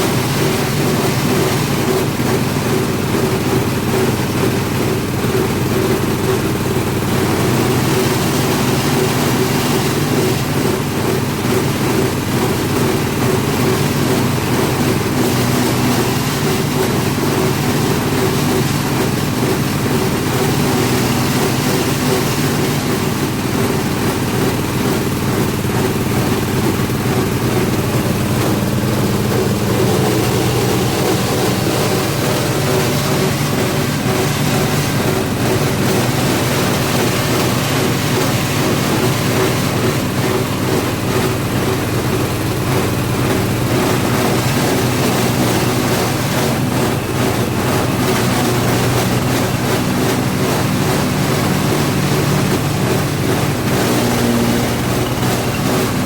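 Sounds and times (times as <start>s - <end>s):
shredding machine droning: 0.0s - 56.0s.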